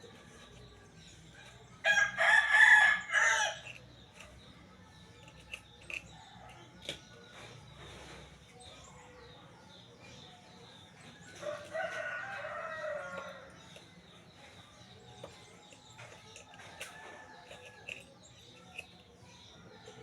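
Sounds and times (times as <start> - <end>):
rooster crowing: 11.4 - 13.5.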